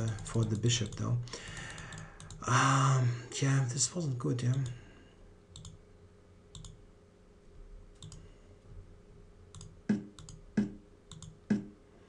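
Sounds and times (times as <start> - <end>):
computer mouse clicks: 0.0 - 2.4, 5.5 - 5.8, 6.5 - 6.8, 8.0 - 8.3, 9.5 - 11.8.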